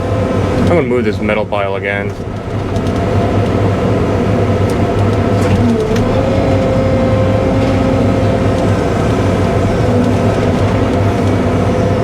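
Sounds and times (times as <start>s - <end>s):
excavator diesel engine: 0.0s - 12.0s
hydraulic whine: 4.1s - 12.0s.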